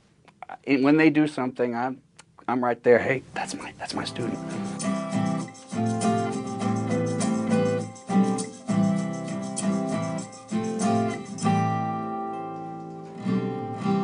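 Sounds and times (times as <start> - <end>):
guitar chords strummed: 3.9 - 14.0.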